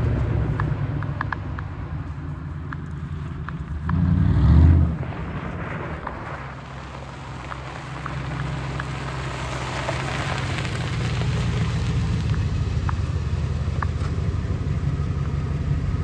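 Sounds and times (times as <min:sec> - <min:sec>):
faint ticks: 0:00.0 - 0:05.6
car engine low drone: 0:00.0 - 0:16.0.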